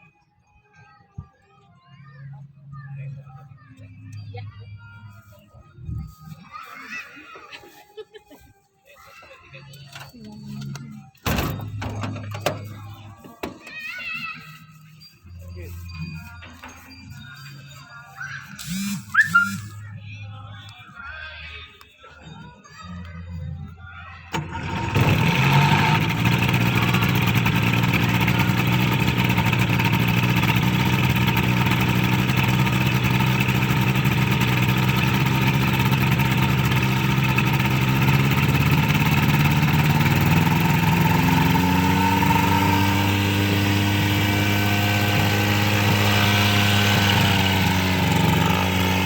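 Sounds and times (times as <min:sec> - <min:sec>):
engine running loudly: 0:24.3 - 0:49.0.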